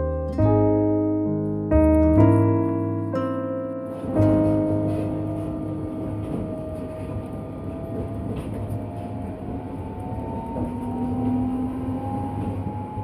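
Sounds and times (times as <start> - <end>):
train rumbling: 2.2 - 13.0
rising train whine: 2.9 - 13.0.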